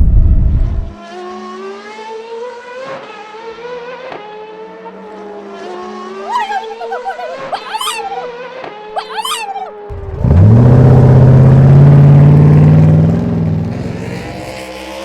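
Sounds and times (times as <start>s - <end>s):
loud low rumble: 0.0s - 1.0s
humming toy engine tone: 6.2s - 8.3s, 9.0s - 10.2s
squeaky rising chirps: 6.2s - 8.3s, 9.0s - 9.9s.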